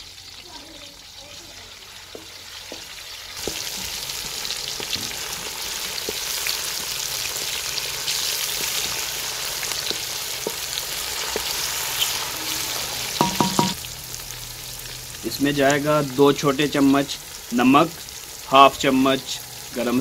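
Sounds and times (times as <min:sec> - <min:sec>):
vegetables sizzling in hot oil: 0:00.0 - 0:20.0.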